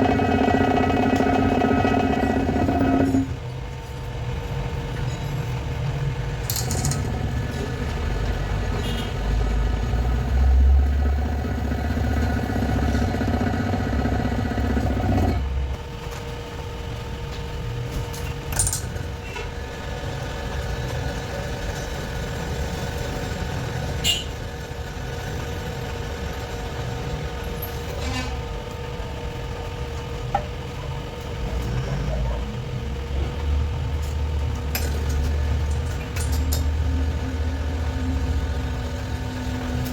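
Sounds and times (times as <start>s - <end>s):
workshop machinery humming: 0.0s - 39.9s.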